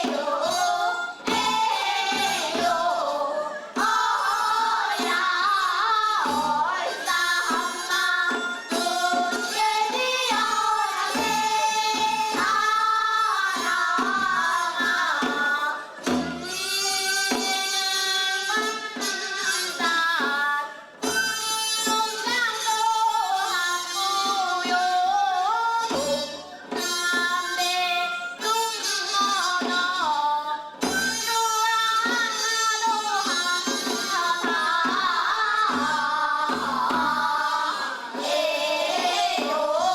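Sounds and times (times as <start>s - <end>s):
women singing folk song: 0.0s - 15.8s, 33.6s - 39.9s
rhythmic drum beats: 0.0s - 39.9s.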